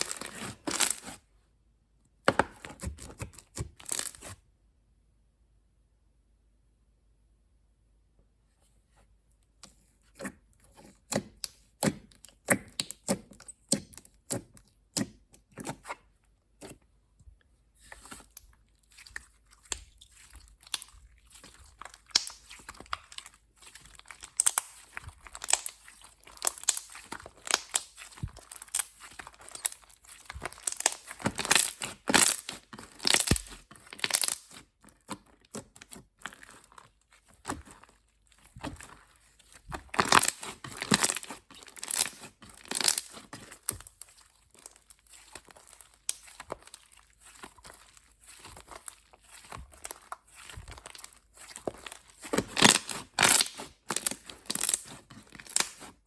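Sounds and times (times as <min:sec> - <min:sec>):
slime popping and crackling: 0:17.8 - 0:56.0.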